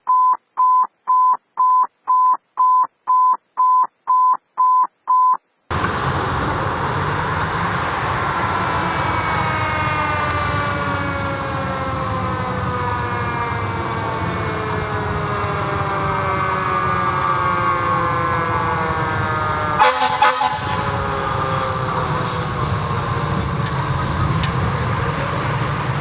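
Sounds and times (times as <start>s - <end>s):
engine and road noise: 5.7s - 26.0s
fire engine siren: 5.7s - 26.0s.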